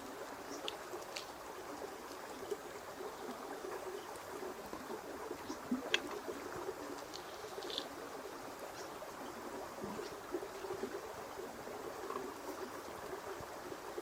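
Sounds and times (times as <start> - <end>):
flowing water: 0.0 - 14.0
light clicks and taps: 0.5 - 1.4.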